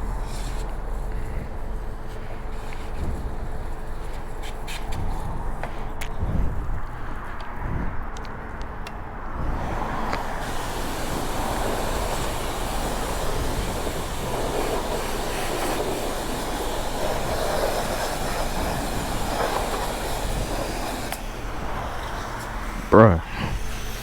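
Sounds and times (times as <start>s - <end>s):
pressure washer spray hissing: 9.6s - 24.0s.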